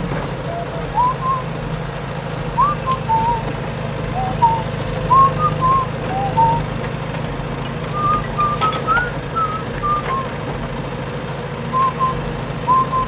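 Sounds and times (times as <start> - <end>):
whistle-like chirps sliding in pitch: 0.5 - 1.4, 2.6 - 3.5, 4.1 - 6.6, 8.0 - 10.3, 11.8 - 13.0.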